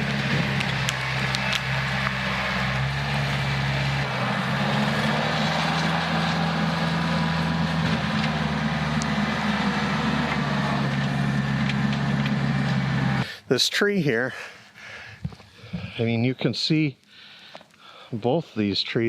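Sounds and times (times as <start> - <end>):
tractor engine running: 0.0 - 13.2.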